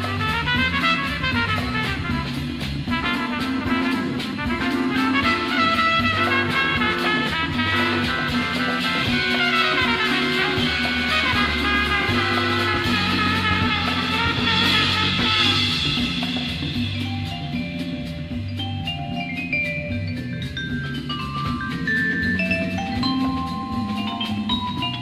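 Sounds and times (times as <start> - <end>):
horns playing quick runs: 0.0 - 17.0
bass and drums: 0.0 - 25.0.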